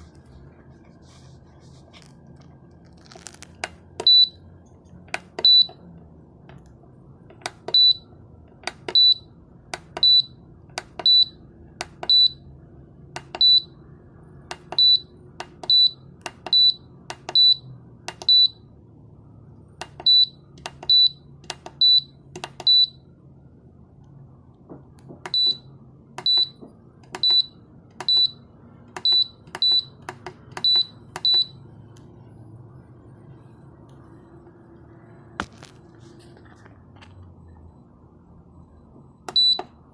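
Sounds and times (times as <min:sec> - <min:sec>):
faint steady hum: 0:00.0 - 0:39.9
button clicks: 0:05.2 - 0:05.8, 0:08.6 - 0:09.1, 0:14.5 - 0:17.5, 0:18.1 - 0:18.4, 0:22.4 - 0:22.8.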